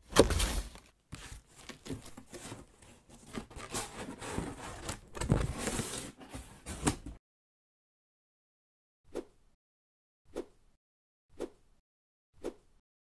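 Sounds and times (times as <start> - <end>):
rustles and scrapes: 0.3 - 7.2.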